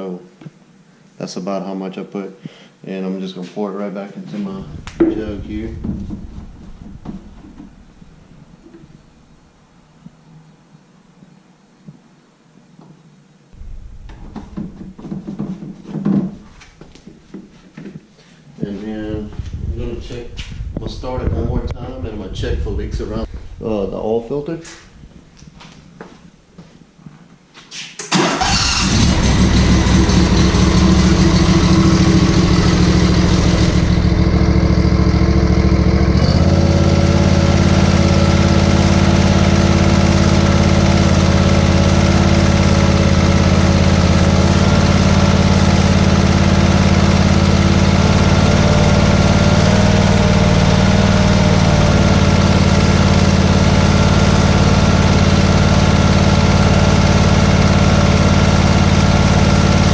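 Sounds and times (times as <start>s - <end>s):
mower engine running: 28.2s - 59.9s.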